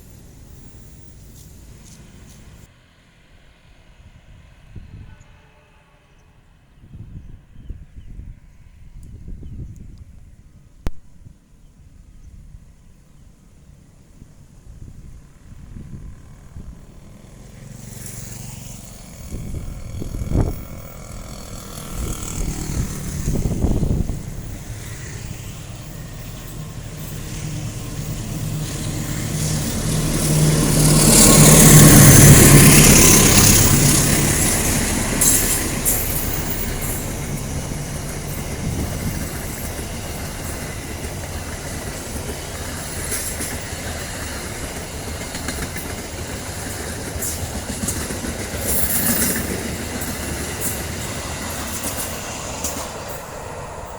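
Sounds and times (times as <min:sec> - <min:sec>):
train wheels clicking on rail joints: 0:00.0 - 0:02.7, 0:16.2 - 0:53.9
diesel locomotive engine: 0:00.0 - 0:11.0, 0:12.0 - 0:53.9.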